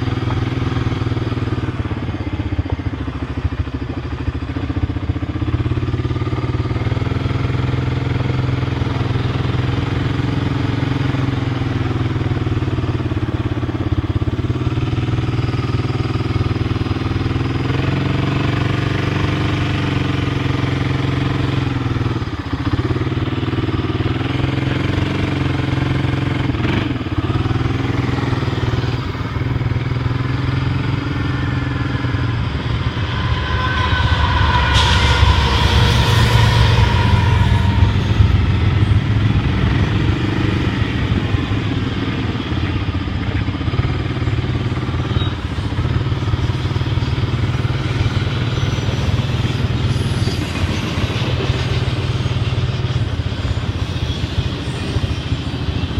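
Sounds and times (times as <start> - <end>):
vehicle engine running: 0.0 - 55.9.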